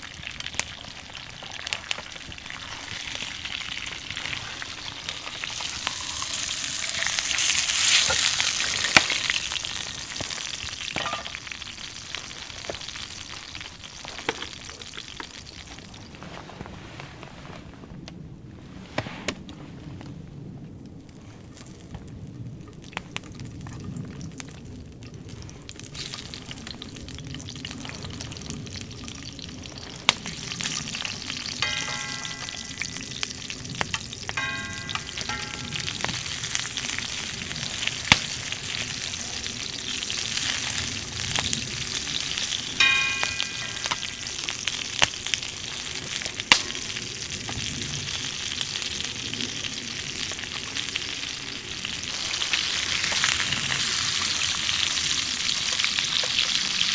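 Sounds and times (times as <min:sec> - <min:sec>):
steak sizzling over fire: 0:00.0 - 0:16.2, 0:20.8 - 0:56.9
short pitched rings: 0:31.6 - 0:33.1, 0:34.4 - 0:36.3, 0:42.8 - 0:44.4.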